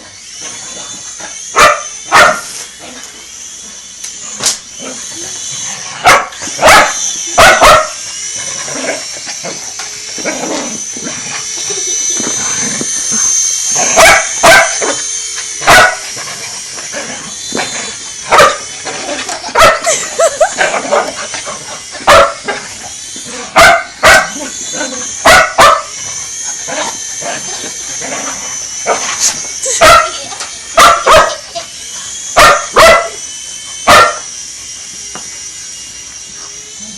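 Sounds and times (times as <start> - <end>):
high-pitched whine: 0.0 - 36.9
dog barking: 1.6 - 2.5, 6.0 - 8.0, 14.0 - 15.0, 15.7 - 16.0, 18.3 - 18.6, 19.6 - 19.8, 22.1 - 22.4, 23.6 - 24.4, 25.2 - 25.9, 29.8 - 30.2, 30.8 - 31.4, 32.4 - 33.2, 33.9 - 34.2.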